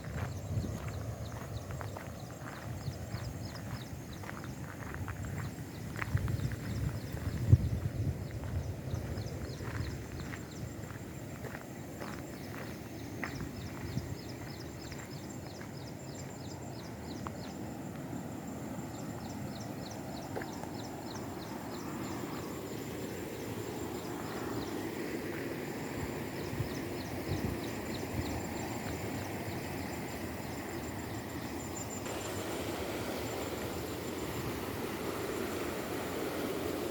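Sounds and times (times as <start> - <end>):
thin high steady tone: 29.8 - 36.9.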